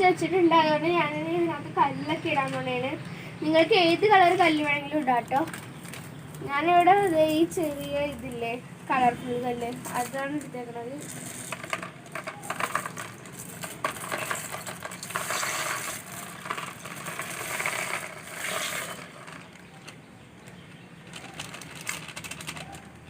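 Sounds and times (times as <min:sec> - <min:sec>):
gravel stones poured into water: 0:11.0 - 0:19.6.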